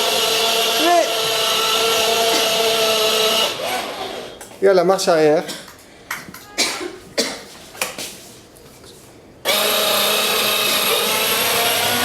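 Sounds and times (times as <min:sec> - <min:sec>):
small electric motor whining: 0:09.5 - 0:12.0.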